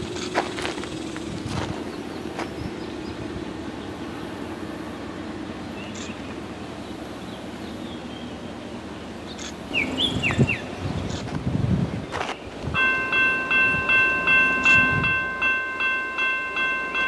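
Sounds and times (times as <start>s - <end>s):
steady low rumble: 0.0s - 16.9s.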